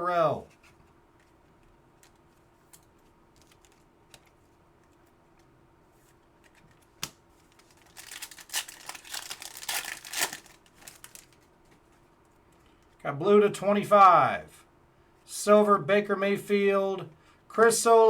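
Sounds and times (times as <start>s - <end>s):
cards being handled: 0.4s - 12.0s
wrapper tearing and crinkling: 7.5s - 11.4s.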